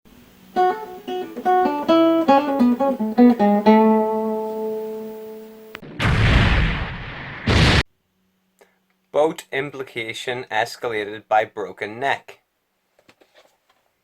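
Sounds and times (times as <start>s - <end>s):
plucked acoustic guitar: 0.5s - 5.8s
loud burst of noise: 5.8s - 7.9s.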